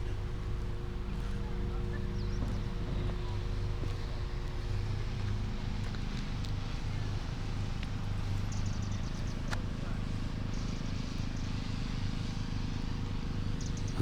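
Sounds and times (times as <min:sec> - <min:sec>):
boat engine idling: 0:00.0 - 0:04.7, 0:13.7 - 0:14.0.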